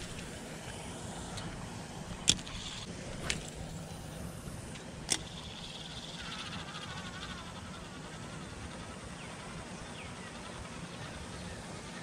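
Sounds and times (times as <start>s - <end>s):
steady low rumble: 0.0s - 10.7s
fishing reel clicks: 4.7s - 6.2s.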